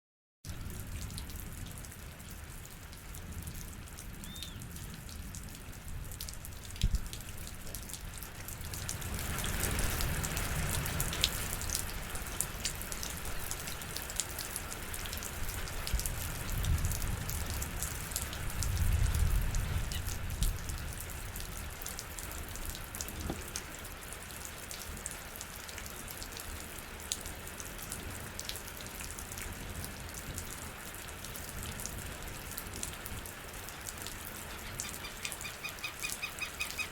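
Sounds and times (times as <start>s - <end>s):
rain drops striking surface: 0.5s - 36.9s.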